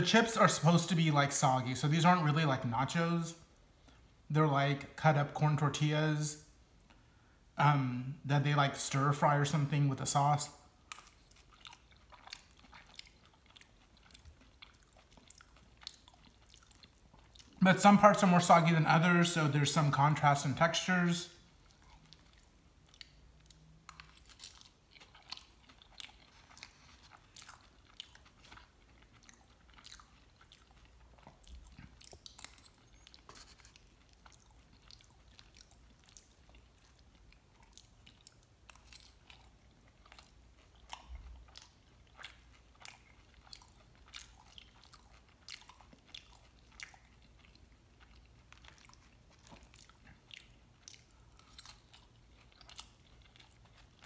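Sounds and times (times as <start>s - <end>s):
close chewing and biting: 10.4s - 18.7s, 21.3s - 54.0s.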